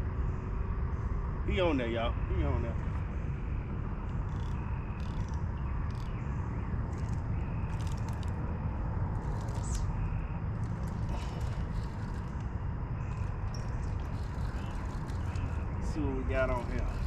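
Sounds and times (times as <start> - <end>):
steady low rumble: 0.0 - 17.0
fishing reel clicks and scrapes: 4.3 - 6.1.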